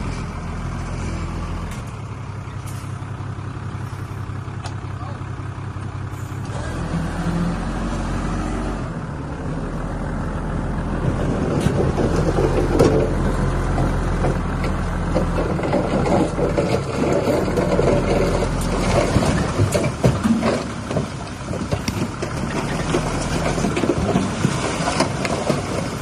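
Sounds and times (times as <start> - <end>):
heavy diesel machinery running: 0.0 - 26.0
clanks and crackle: 11.5 - 26.0.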